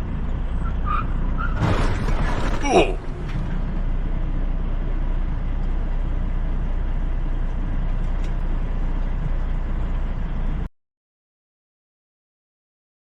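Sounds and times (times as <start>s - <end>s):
vehicle engine and tyres rumbling: 0.0s - 10.7s.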